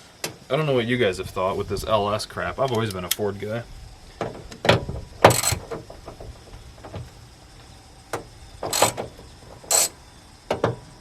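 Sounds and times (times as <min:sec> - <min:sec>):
metal tools clinking and rattling: 0:05.3 - 0:05.7, 0:08.6 - 0:10.0.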